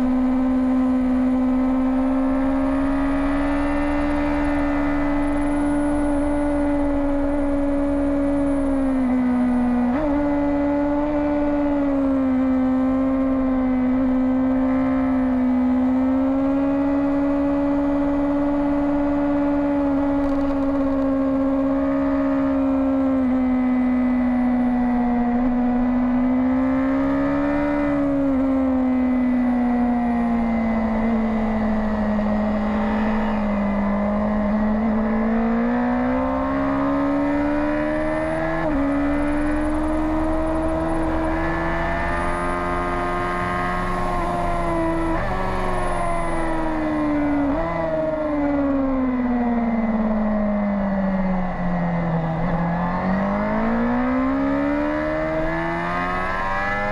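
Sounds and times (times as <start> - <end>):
motorbike engine at speed: 0.0 - 56.9.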